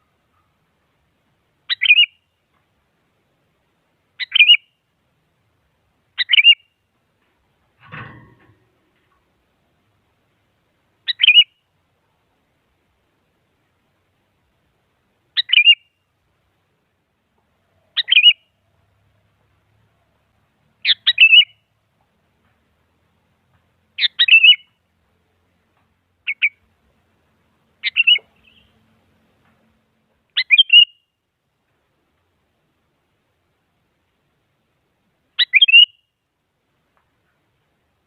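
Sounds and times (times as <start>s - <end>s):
bulbul calling: 1.7s - 2.3s, 4.2s - 4.8s, 6.2s - 6.8s, 11.0s - 11.6s, 15.4s - 16.0s, 17.7s - 18.6s, 20.8s - 21.7s, 24.0s - 24.8s, 26.2s - 26.7s, 27.8s - 28.8s, 30.3s - 31.1s, 35.4s - 36.1s.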